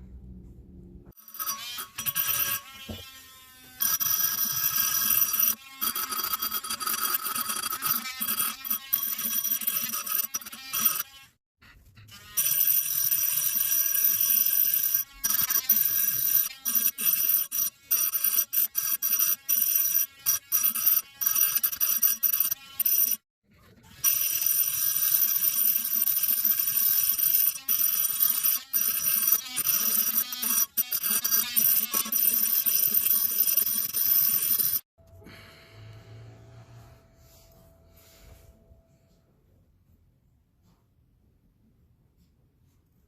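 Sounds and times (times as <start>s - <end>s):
small electric motor whine: 23.8s - 34.8s.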